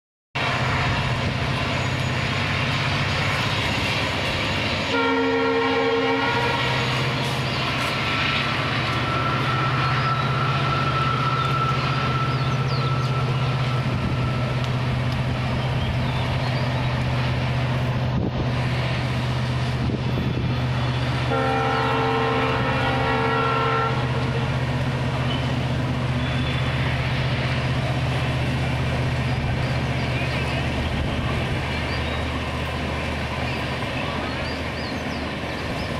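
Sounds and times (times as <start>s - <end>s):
passenger train rumbling: 0.4s - 35.9s
locomotive horn blasts: 4.9s - 7.3s, 21.2s - 24.5s.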